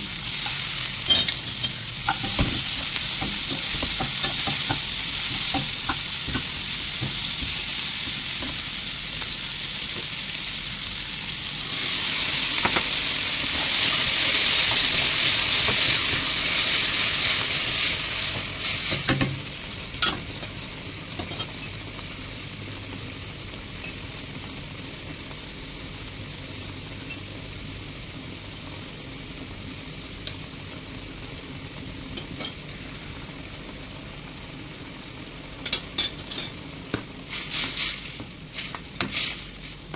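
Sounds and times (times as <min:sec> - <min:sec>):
vegetables sizzling in hot oil: 0:00.0 - 0:39.9
sauce simmering: 0:20.6 - 0:35.6.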